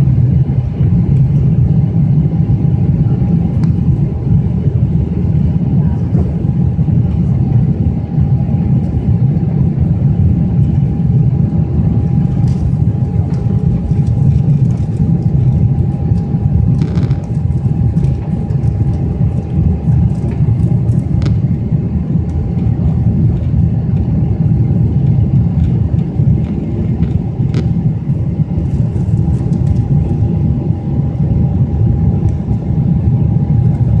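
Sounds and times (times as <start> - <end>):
jet engines running: 0.0 - 34.0.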